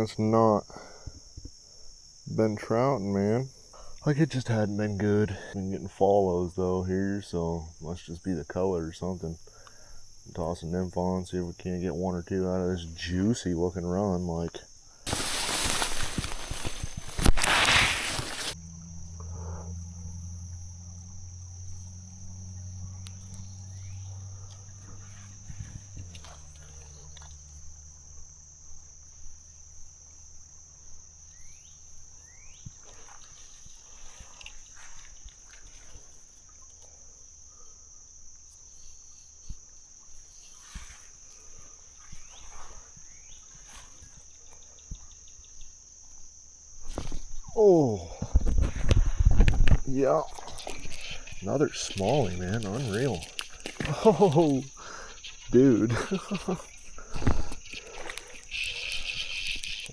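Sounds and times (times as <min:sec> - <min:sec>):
low steady hum: 0:00.0 - 0:32.9
insects trilling: 0:00.0 - 0:59.9.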